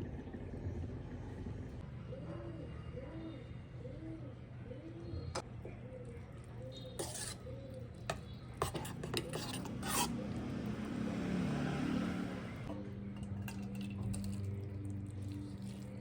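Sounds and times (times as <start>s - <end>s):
steady low hum: 0.0s - 9.3s
utensil scraping and stirring: 6.4s - 11.1s, 12.6s - 16.0s.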